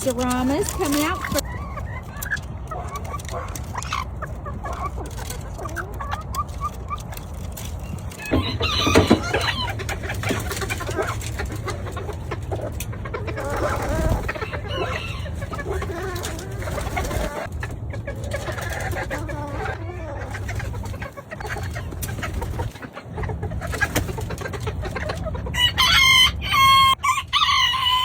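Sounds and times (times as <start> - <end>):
chickens clucking: 0.0 - 28.0
rooster crowing: 8.2 - 9.8, 13.8 - 15.5, 25.6 - 28.0.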